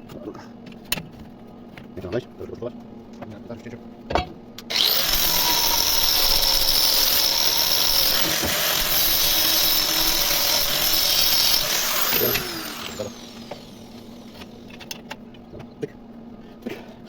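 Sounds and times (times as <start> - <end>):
power saw cutting steel: 4.7 - 14.7.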